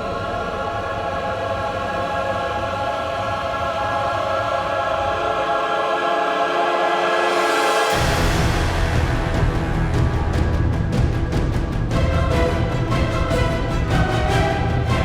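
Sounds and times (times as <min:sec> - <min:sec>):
choir holding sustained chords: 0:00.0 - 0:15.0
orchestral film score: 0:00.0 - 0:15.0
low rumble: 0:07.9 - 0:15.0.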